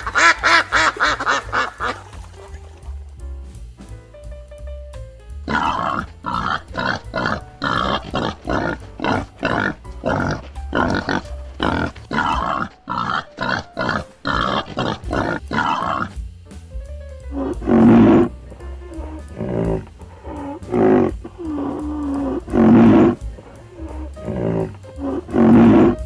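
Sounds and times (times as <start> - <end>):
wild boar grunting: 5.5 - 16.2, 17.3 - 26.0.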